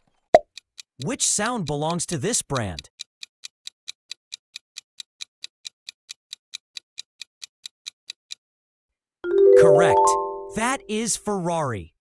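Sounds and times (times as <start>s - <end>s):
countdown timer ticking: 0.4s - 8.4s.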